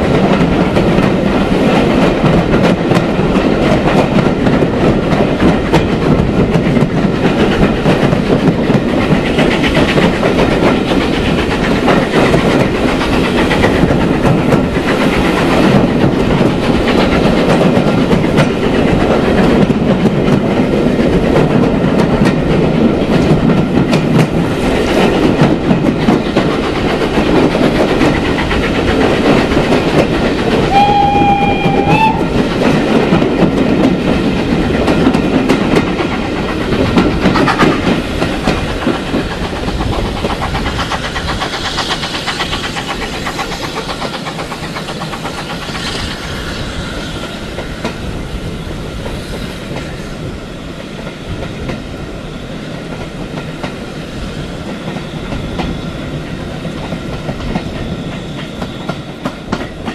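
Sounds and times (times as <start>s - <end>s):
train wheels clattering on rails: 0.0s - 59.9s
locomotive whistle: 30.7s - 32.4s.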